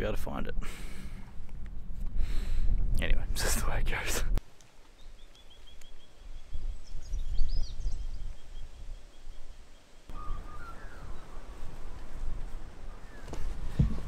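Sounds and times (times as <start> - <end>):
bird chirps: 4.9 - 11.7
lower whistled bird call: 5.0 - 11.7.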